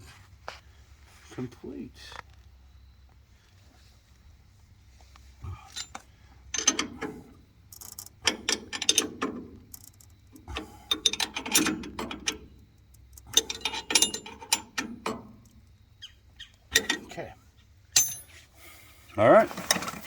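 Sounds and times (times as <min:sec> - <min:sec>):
ratchet wrench clicking: 0:06.6 - 0:07.1, 0:07.7 - 0:15.6.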